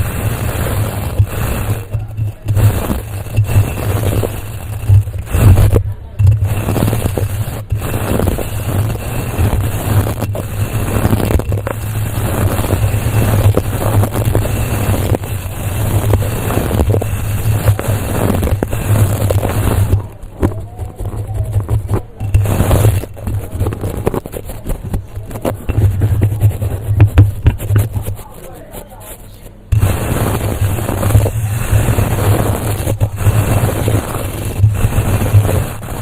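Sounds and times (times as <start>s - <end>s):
scratching against a microphone: 0.0s - 36.0s.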